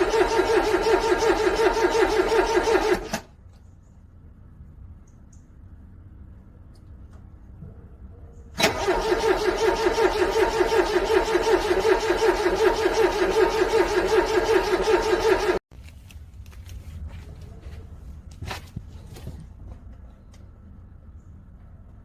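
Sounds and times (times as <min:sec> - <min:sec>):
car engine cranking on starter: 0:00.0 - 0:03.3, 0:08.6 - 0:15.6.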